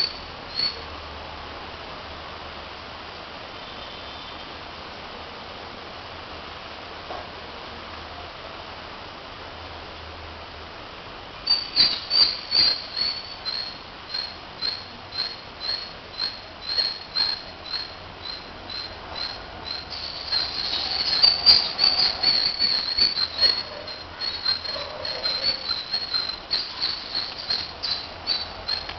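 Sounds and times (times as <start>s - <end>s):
bird chirping: 0.0s - 0.8s, 11.5s - 28.9s.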